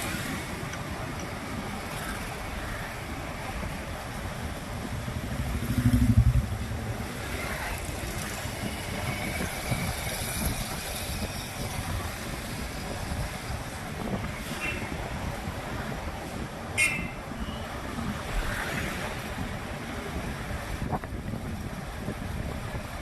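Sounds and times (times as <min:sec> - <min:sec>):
road traffic noise: 0:00.0 - 0:23.0
low rumble: 0:04.9 - 0:07.3.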